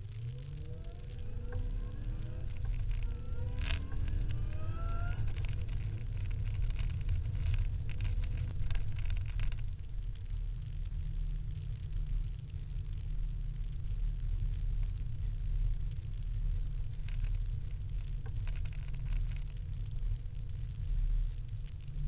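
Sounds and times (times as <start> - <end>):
car engine accelerating: 0.0 - 8.5
road noise: 0.0 - 22.0.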